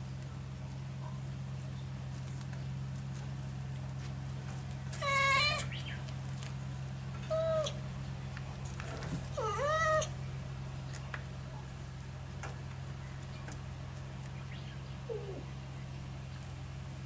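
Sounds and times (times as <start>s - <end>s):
steady low hum: 0.0s - 17.0s
kitten meowing: 5.0s - 5.8s, 7.3s - 7.8s, 9.4s - 10.2s.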